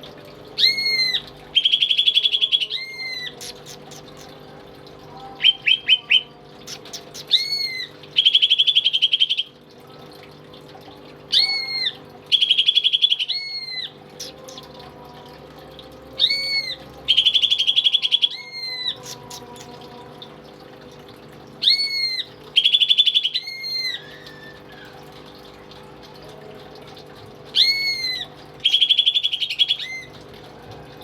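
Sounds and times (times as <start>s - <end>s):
bird singing whistles and trills: 0.6s - 4.4s, 5.4s - 9.6s, 11.3s - 14.8s, 16.1s - 19.8s, 21.6s - 25.0s, 27.5s - 30.2s.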